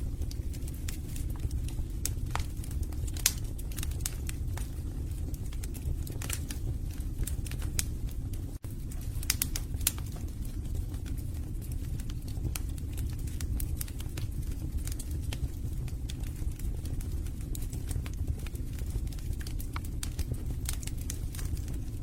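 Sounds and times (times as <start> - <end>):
logs burning in a fireplace: 0.0 - 22.0.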